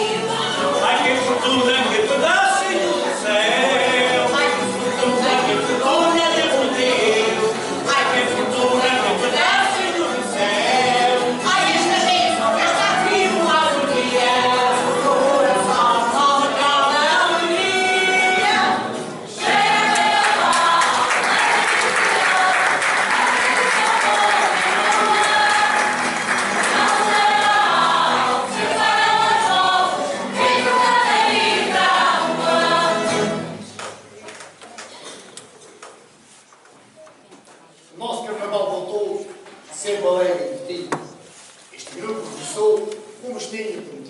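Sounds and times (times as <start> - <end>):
group singing in chorus: 0.0 - 33.7.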